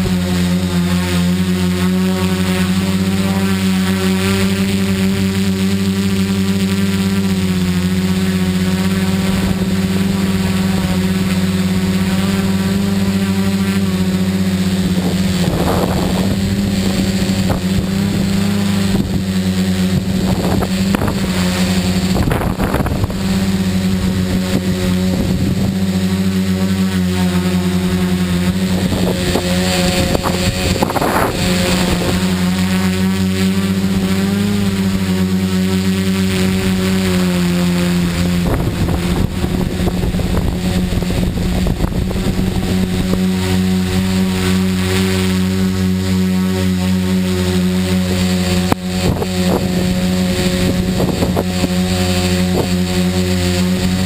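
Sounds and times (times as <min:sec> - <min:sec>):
drone propellers buzzing: 0:00.0 - 0:54.0.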